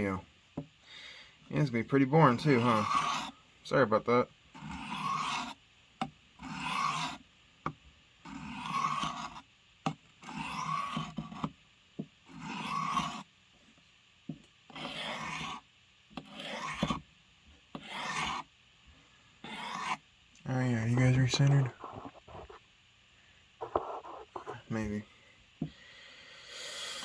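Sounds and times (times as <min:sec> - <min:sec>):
blade strokes on an abrasive: 0:02.3 - 0:03.4, 0:04.6 - 0:05.6, 0:06.4 - 0:07.2, 0:10.2 - 0:11.2, 0:12.3 - 0:13.2, 0:14.8 - 0:15.6.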